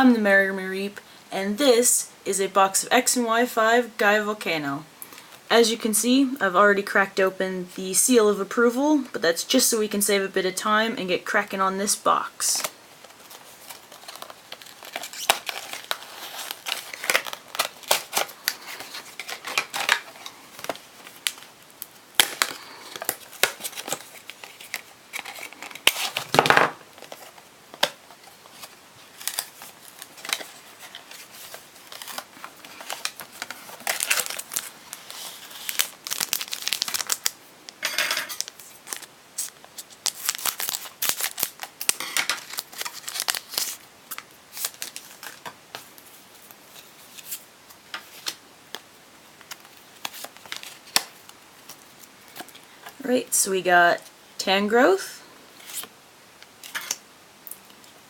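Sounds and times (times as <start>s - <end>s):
foil wrappers tearing and crinkling: 12.6s - 37.4s, 38.3s - 46.0s, 49.4s - 52.9s, 55.6s - 55.9s.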